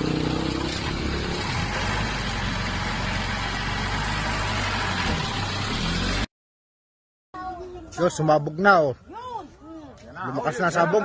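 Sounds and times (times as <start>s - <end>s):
pickup truck engine passing: 0.0s - 6.3s.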